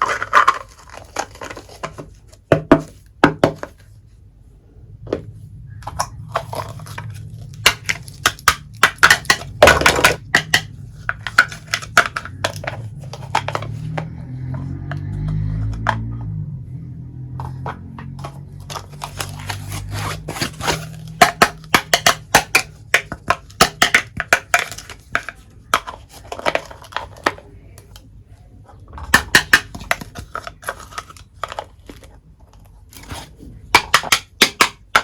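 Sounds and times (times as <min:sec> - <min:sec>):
low steady hum: 0:00.0 - 0:35.0
toy kitchen pieces clinking: 0:18.0 - 0:28.0.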